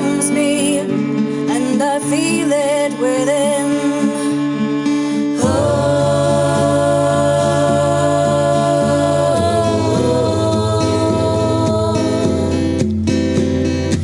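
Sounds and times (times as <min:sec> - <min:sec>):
choir-like singing voice: 0:05.4 - 0:12.9.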